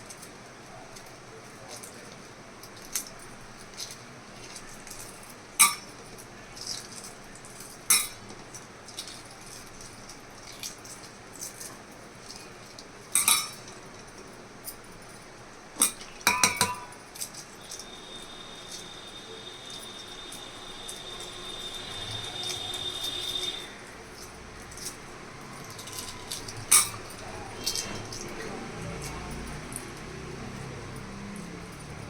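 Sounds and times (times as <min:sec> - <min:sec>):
dishes and utensils clinking: 0:05.6 - 0:06.9, 0:07.6 - 0:08.4, 0:12.3 - 0:15.2, 0:15.8 - 0:32.0.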